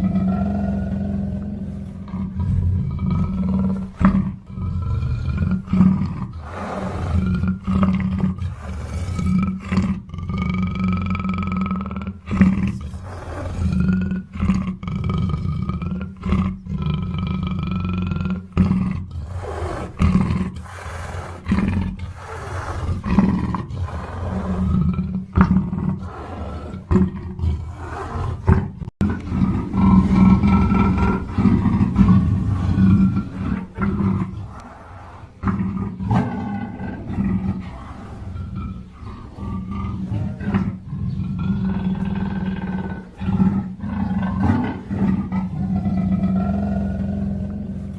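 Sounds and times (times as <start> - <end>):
panther deep rough calls: 16.2 - 47.9.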